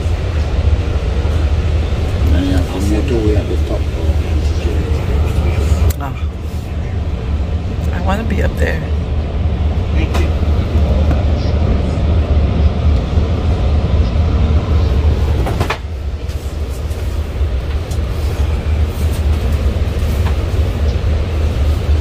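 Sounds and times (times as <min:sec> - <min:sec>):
train rumble inside passenger car: 0:00.0 - 0:22.0.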